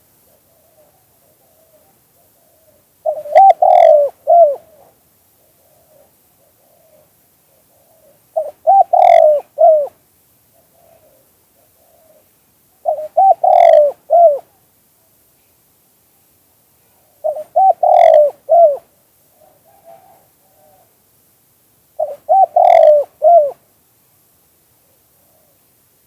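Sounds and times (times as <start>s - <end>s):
dove cooing: 0.0s - 14.6s, 17.0s - 20.9s, 22.0s - 23.6s.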